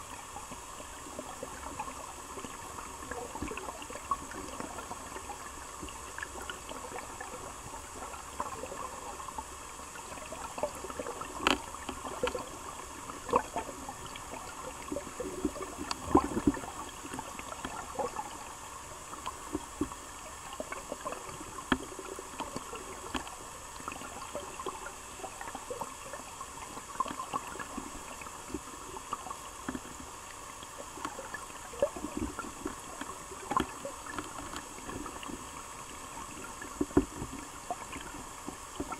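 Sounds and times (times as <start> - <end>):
river water gurgling: 0.0 - 38.9
small clicks and taps: 32.2 - 35.4.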